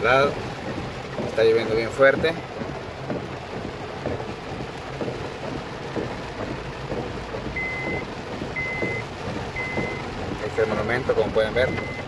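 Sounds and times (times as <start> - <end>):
heavy rain on a car: 0.0 - 12.0
high electronic beeps: 7.6 - 8.0, 8.6 - 9.0, 9.6 - 10.0, 11.6 - 12.0.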